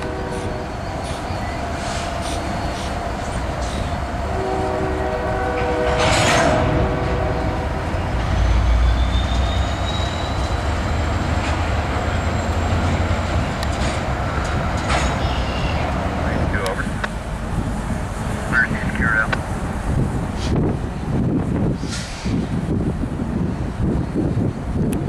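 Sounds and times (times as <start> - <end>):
diesel train horn chord: 0.0 - 0.7, 4.3 - 8.0
diesel locomotives rumbling: 0.0 - 25.0
freight train rolling past: 0.0 - 25.0
faint high wheel squeal: 0.2 - 3.0, 8.0 - 11.2, 15.0 - 15.9.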